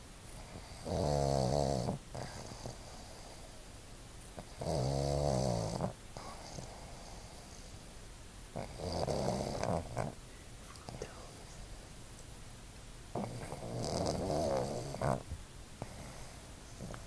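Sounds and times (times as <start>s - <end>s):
dog snoring: 0.3s - 3.6s, 4.4s - 7.9s, 8.5s - 10.2s, 13.1s - 17.0s.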